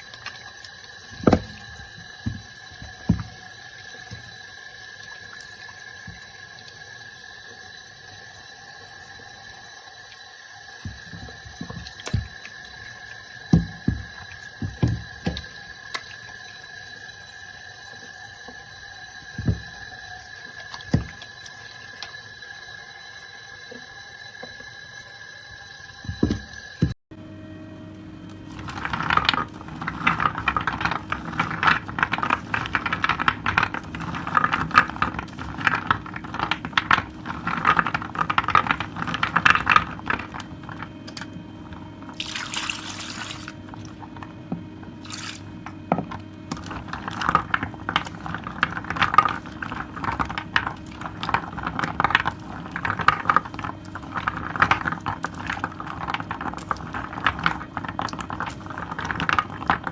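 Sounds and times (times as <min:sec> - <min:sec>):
soap lathering squelching: 0:00.0 - 0:07.4, 0:10.8 - 0:22.3, 0:28.3 - 0:59.9
water hissing: 0:39.7 - 0:47.1.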